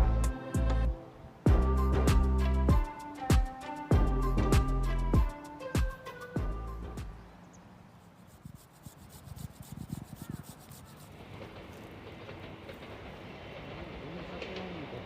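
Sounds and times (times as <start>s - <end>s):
knocks and rubbing noises: 8.2s - 13.0s
train rumble: 10.4s - 15.0s.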